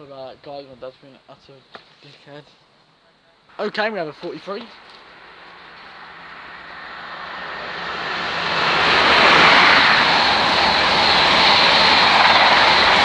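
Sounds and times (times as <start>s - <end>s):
diesel train passing at speed: 3.5s - 13.0s.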